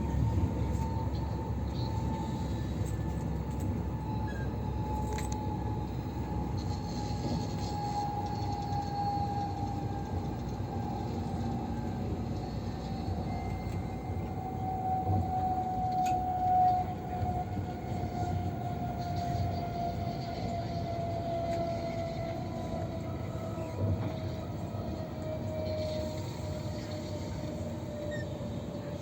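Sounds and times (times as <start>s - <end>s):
high-speed train rumbling: 0.0s - 29.0s.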